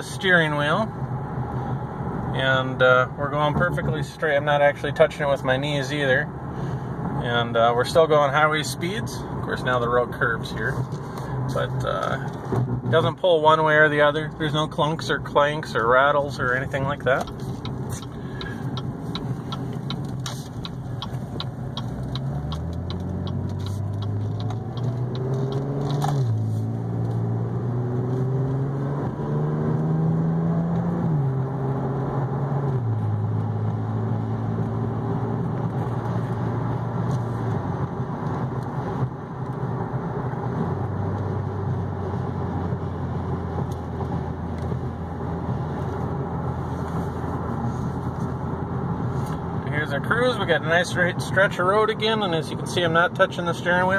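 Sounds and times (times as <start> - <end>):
road noise: 0.0 - 53.9
car engine accelerating: 15.1 - 53.9
regular ticking: 16.8 - 26.0.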